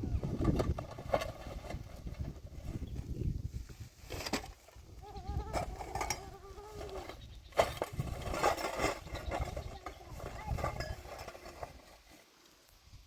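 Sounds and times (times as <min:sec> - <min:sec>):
farm animal bleating: 0:04.9 - 0:07.2.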